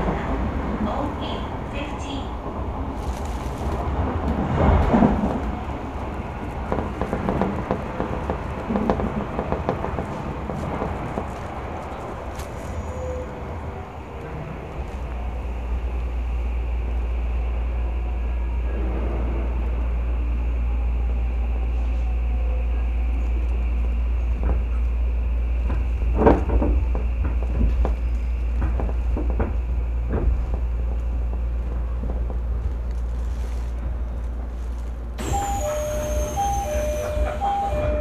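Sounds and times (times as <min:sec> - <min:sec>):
train low rumble: 0:00.0 - 0:38.0
two-note electronic tone: 0:35.2 - 0:38.0.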